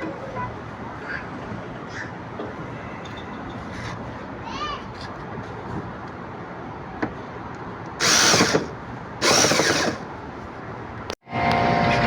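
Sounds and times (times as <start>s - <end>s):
power drill driving screws: 8.0s - 10.1s.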